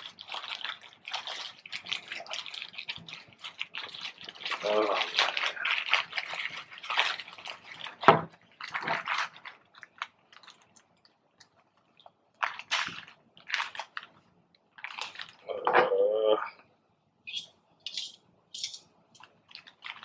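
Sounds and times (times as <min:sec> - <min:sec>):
wet sticky sandwich handling: 0:00.0 - 0:15.4.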